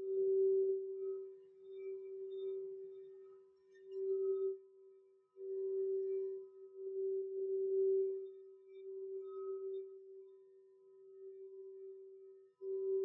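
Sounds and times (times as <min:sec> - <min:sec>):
singing bowl ringing: 0:05.4 - 0:13.0.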